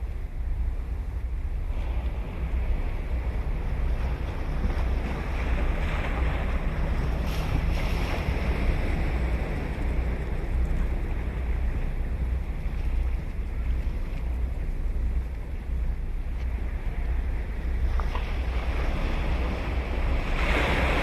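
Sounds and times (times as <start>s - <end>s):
ocean waves breaking: 0.0s - 21.0s
wind buffeting microphone: 0.0s - 21.0s.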